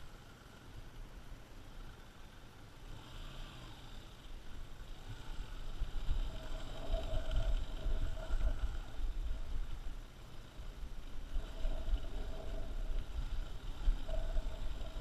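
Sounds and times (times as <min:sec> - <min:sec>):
off-road motorcycle engine: 0:00.0 - 0:15.0
wind buffeting microphone: 0:05.4 - 0:15.0.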